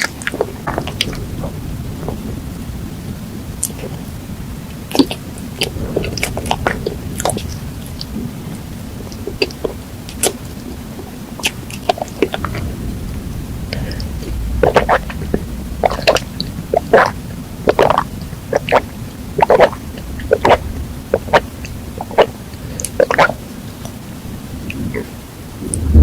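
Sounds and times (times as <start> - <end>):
low steady rumble: 12.2 - 26.0.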